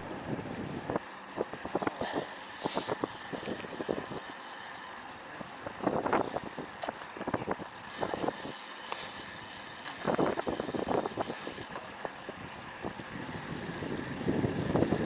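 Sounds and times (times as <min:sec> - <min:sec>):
wind buffeting microphone: 0:05.4 - 0:15.0.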